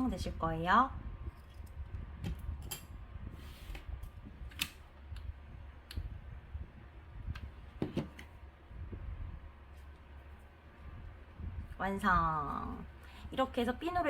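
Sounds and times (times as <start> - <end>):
low steady hum: 0.0 - 14.0
rustle of craft materials: 3.2 - 4.5, 9.6 - 11.8.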